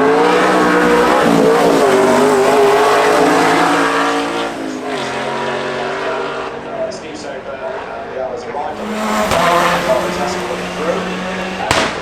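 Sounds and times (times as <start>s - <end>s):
racing car engine passing: 0.0s - 12.0s.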